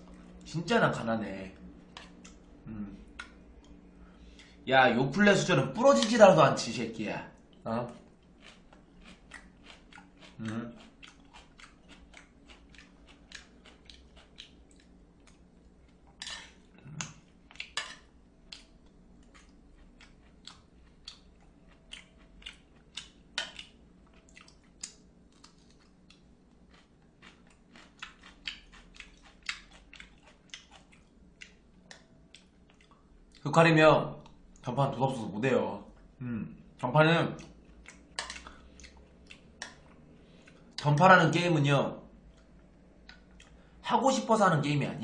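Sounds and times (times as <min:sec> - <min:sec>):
wet chewing mouth clicks: 0:08.4 - 0:15.4, 0:18.5 - 0:33.4.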